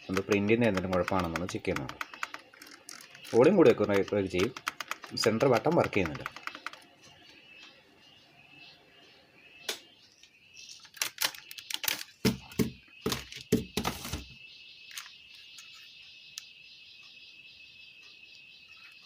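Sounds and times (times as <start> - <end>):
plastic clicks and knocks: 0.0 - 6.9, 10.8 - 15.7.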